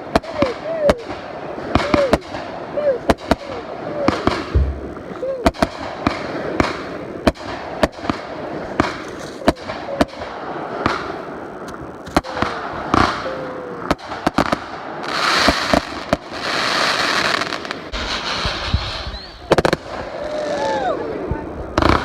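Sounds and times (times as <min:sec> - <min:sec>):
firework bangs: 0:00.0 - 0:22.0
firework crackling: 0:00.0 - 0:22.0
falling firework whistles: 0:12.1 - 0:21.0.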